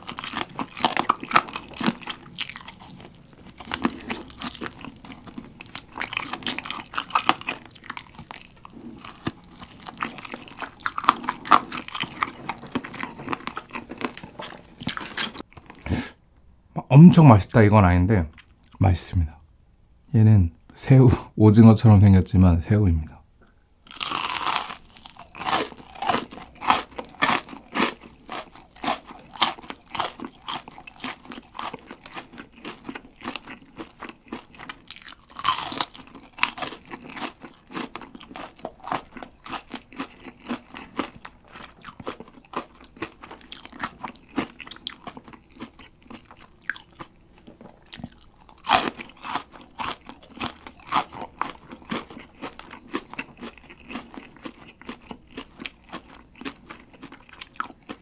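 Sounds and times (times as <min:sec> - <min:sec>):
chewing crispy fried food: 0:00.0 - 0:16.2, 0:18.2 - 0:18.8, 0:23.8 - 0:58.0.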